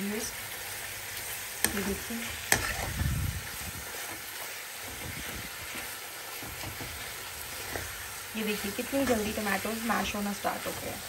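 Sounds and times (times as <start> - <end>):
food sizzling in a pan: 0.0 - 11.0
steel spatula stirring: 1.6 - 3.0, 3.8 - 11.0.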